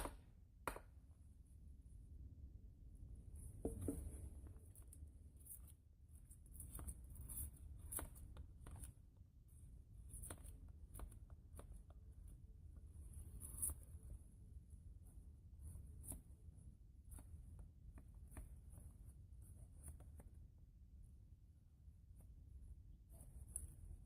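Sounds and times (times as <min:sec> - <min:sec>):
wood knock: 0:03.6 - 0:04.1.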